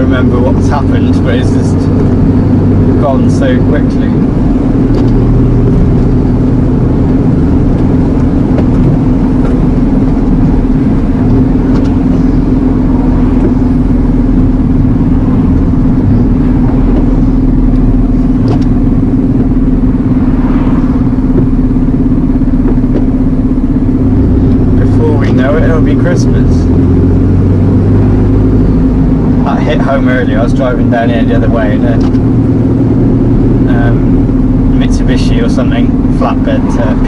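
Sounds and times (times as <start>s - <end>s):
diesel lorry engine drone: 0.0s - 37.0s
road noise: 0.0s - 37.0s.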